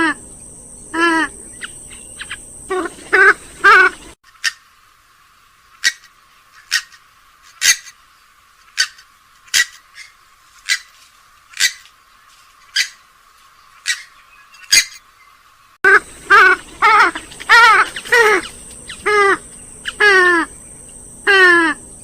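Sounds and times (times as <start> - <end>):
waterbird high-pitched calls: 0.9 - 4.7, 5.7 - 7.0, 8.7 - 10.9, 12.7 - 13.0, 13.8 - 15.0, 15.9 - 21.8.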